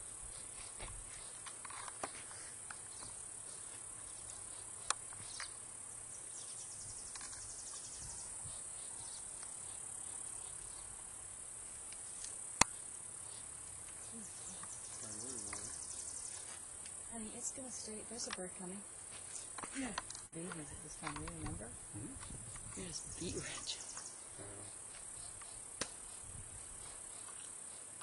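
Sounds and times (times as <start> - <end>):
crickets trilling: 0.0 - 28.0
sharp clicks: 18.1 - 18.5, 19.6 - 21.6.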